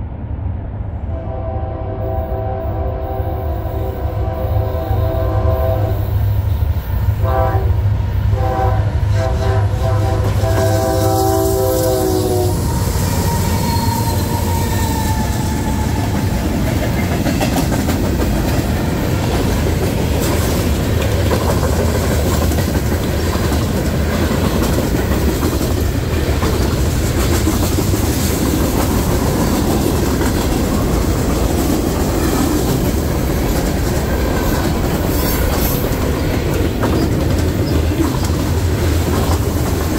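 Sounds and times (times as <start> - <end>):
train wheels rumbling: 0.0 - 39.9
locomotive air horn blasts: 1.1 - 6.2, 7.2 - 12.6
wheels clacking over rail joints: 12.6 - 39.9.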